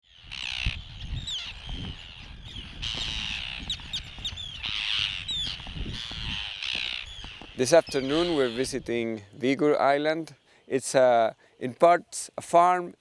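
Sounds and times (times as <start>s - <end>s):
terns calling harshly: 0.0s - 11.8s
sharply falling bird cries: 2.2s - 8.6s.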